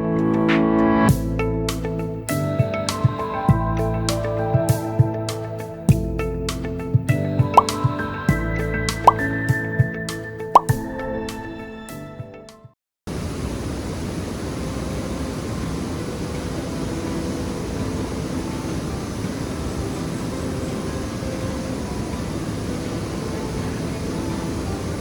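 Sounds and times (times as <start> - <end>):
waterfall rushing: 13.1 - 25.0.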